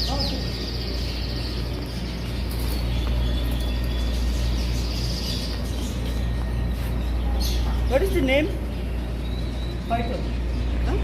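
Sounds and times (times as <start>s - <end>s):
birds chirping faintly: 0.0s - 11.0s
steady low hum: 0.0s - 11.0s.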